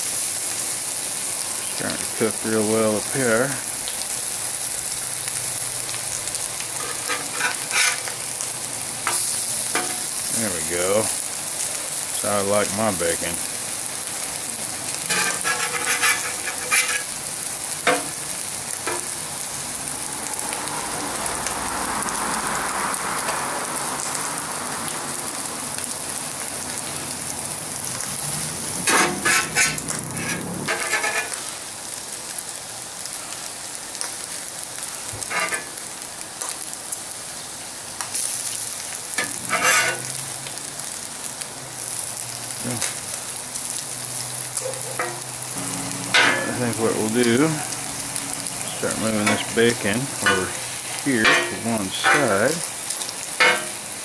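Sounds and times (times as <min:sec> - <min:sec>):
food sizzling on a griddle: 0:00.0 - 0:54.0
metal spatula scraping griddle: 0:06.7 - 0:08.3, 0:15.0 - 0:17.2, 0:28.8 - 0:31.4, 0:35.2 - 0:35.8, 0:39.2 - 0:40.2, 0:46.0 - 0:52.7, 0:53.4 - 0:53.9.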